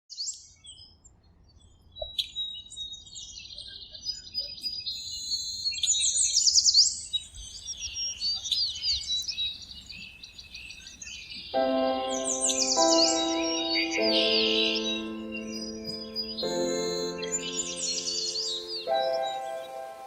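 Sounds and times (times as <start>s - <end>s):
songbirds singing and chirping: 0.2s - 20.0s.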